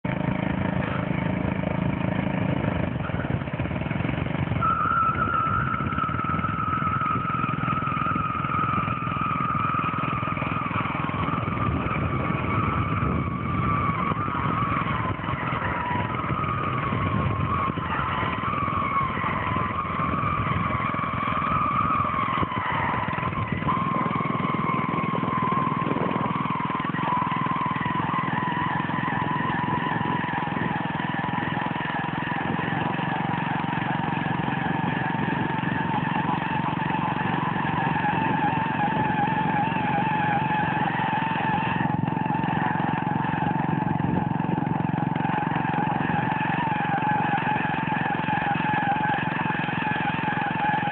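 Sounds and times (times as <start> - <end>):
lawnmower engine running hard: 0.0 - 50.9
high whine: 0.1 - 47.1.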